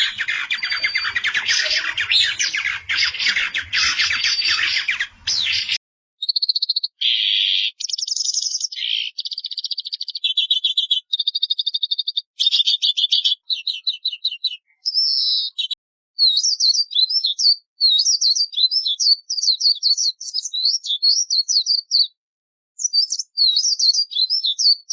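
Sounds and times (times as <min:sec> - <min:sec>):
bird warbling song: 0:00.0 - 0:22.1
bird chirps and trills: 0:00.0 - 0:22.2.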